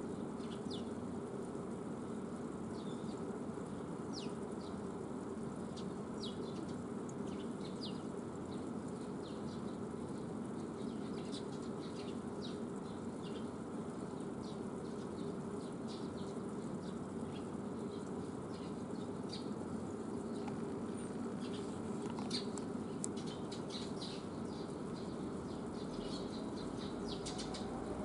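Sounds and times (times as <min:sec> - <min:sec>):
steady low hum: 0:00.0 - 0:28.0
birds giving high call notes: 0:21.0 - 0:28.0.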